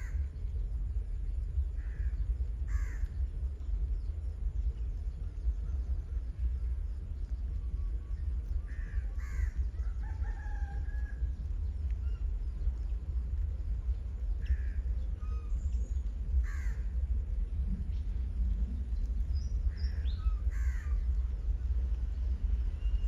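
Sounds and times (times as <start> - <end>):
steady low rumble: 0.0 - 23.0
crows cawing: 2.7 - 3.1, 8.7 - 9.8, 14.5 - 14.8, 16.4 - 16.9, 19.9 - 21.0.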